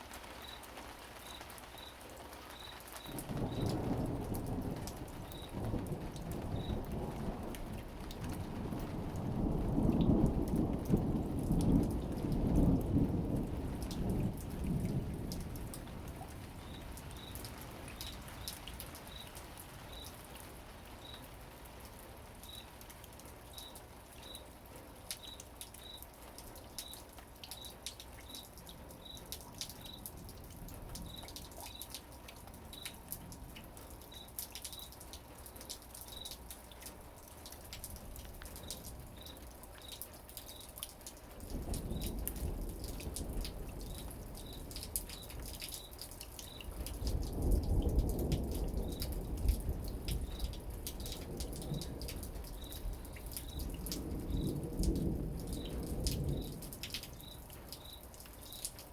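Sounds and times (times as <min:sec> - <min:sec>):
steady rain dripping: 0:00.0 - 0:58.9
thunder rumbling: 0:03.0 - 0:18.1, 0:41.4 - 0:45.5, 0:46.6 - 0:57.3.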